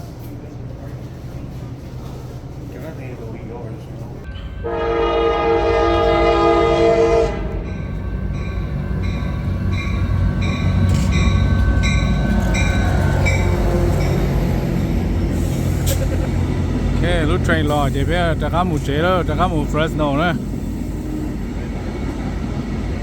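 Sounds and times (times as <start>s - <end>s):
train rumble: 0.0s - 23.0s
railroad crossing bell ringing: 4.3s - 15.2s
train horn blast: 4.5s - 7.7s, 11.5s - 14.6s.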